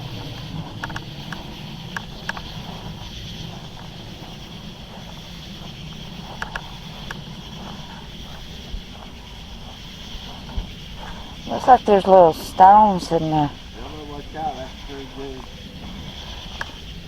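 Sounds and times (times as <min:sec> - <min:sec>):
high insect drone: 0:00.0 - 0:17.0
low camera hum: 0:00.0 - 0:17.0
sharp clicks: 0:00.1 - 0:04.5, 0:05.1 - 0:08.4.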